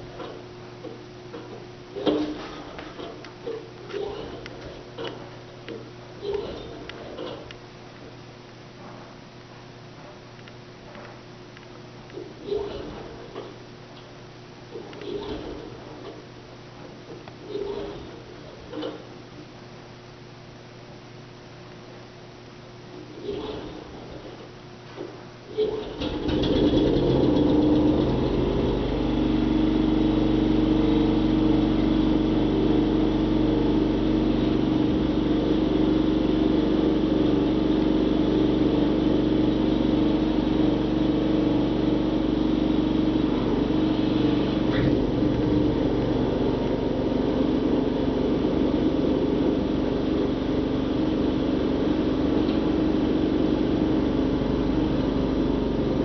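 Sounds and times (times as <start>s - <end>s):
snow blower engine running: 26.0s - 56.0s.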